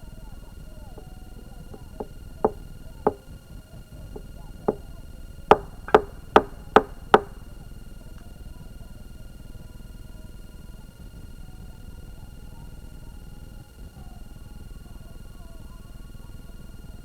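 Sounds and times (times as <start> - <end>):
sharp chopping knocks: 1.0 - 3.2, 5.5 - 7.5.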